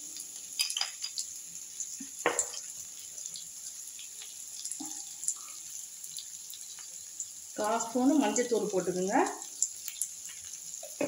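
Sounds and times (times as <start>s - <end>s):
vegetables sizzling in oil: 0.0s - 11.0s
spatula knocking against pan: 2.2s - 2.6s.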